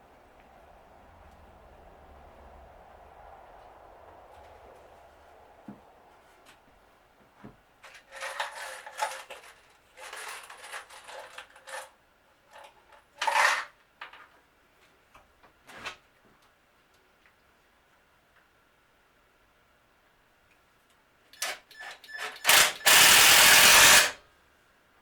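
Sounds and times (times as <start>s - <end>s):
scraping and rustling strokes: 3.5s - 12.0s.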